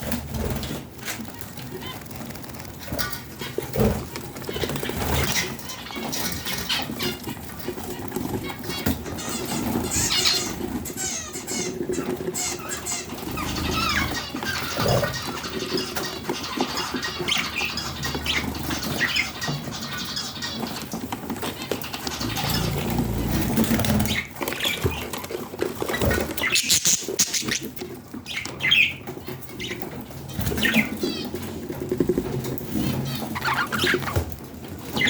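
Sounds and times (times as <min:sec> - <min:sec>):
budgerigars chirping and squawking: 0:02.8 - 0:35.0.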